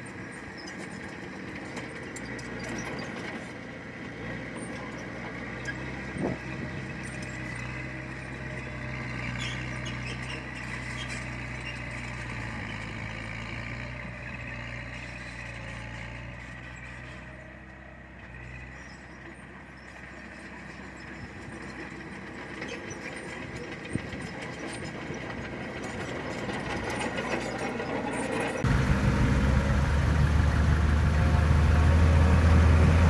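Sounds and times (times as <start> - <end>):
heavy diesel engine running: 23.2 - 33.0.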